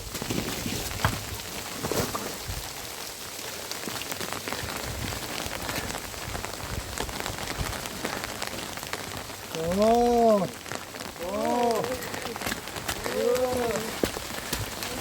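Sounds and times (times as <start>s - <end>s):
rain drops ticking on surfaces: 0.0s - 15.0s.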